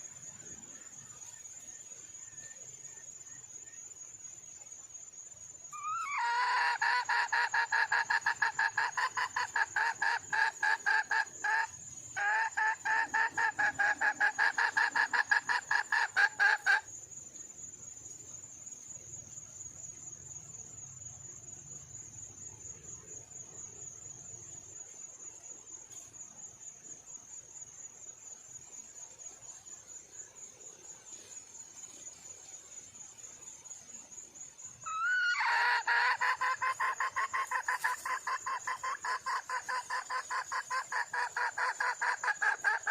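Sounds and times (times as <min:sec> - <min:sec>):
cricket trill: 0:00.0 - 0:42.9
hen clucking: 0:05.8 - 0:16.8, 0:34.9 - 0:42.9.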